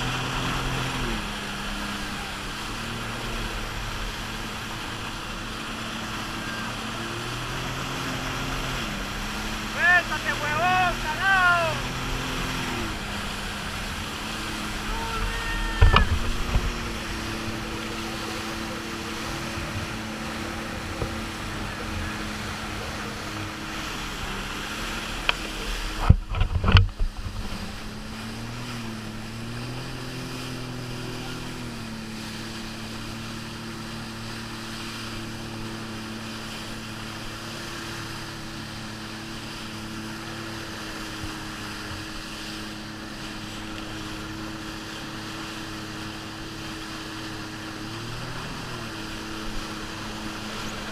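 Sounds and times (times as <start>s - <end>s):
jet ski engine running: 0.0s - 50.9s.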